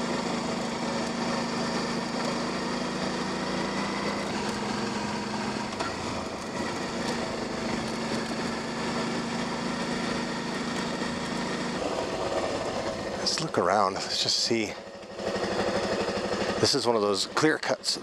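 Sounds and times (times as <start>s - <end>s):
wind and tyre noise: 0.0s - 13.6s
motorcycle engine running: 0.0s - 18.0s.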